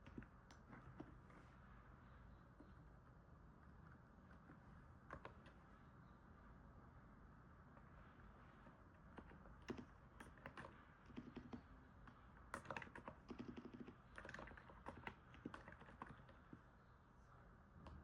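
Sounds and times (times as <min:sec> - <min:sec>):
faint keyboard typing: 0:00.0 - 0:02.9, 0:03.6 - 0:05.8, 0:07.7 - 0:16.8.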